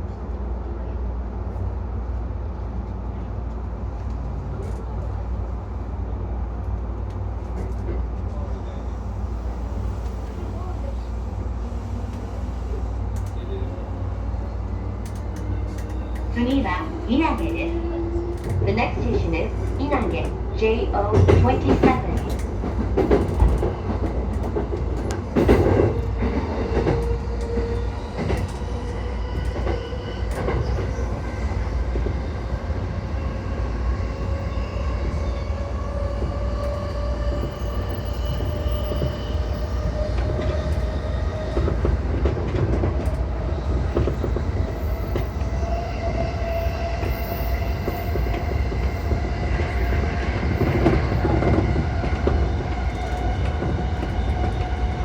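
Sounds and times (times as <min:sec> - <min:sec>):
wheels rumbling on rail: 0:00.0 - 0:55.0.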